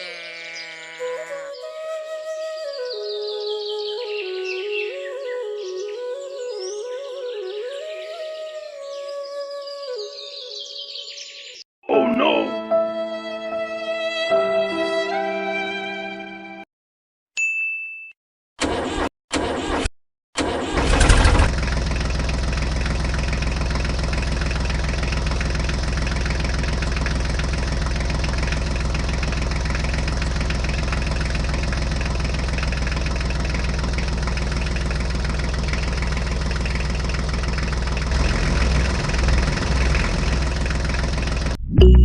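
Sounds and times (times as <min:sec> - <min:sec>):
tractor engine starting and idling: 0:18.6 - 0:41.6.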